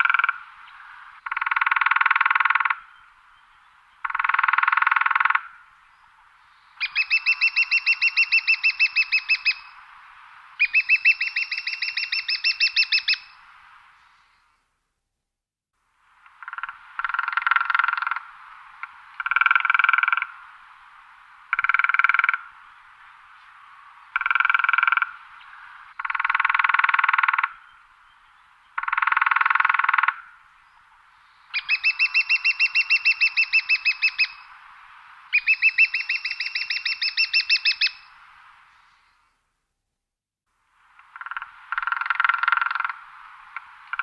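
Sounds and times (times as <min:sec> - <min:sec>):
woodpecker drumming on wood: 0:01.2 - 0:02.8, 0:04.0 - 0:05.5, 0:16.2 - 0:20.3, 0:24.2 - 0:25.2, 0:26.0 - 0:27.6, 0:28.8 - 0:30.2, 0:41.0 - 0:44.0.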